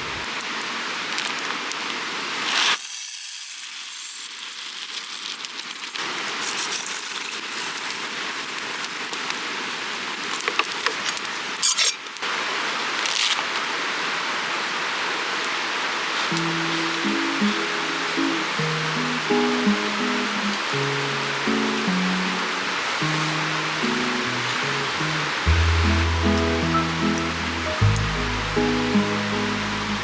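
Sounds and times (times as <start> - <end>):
campfire crackling and hissing: 4.3 - 11.6, 15.0 - 30.0.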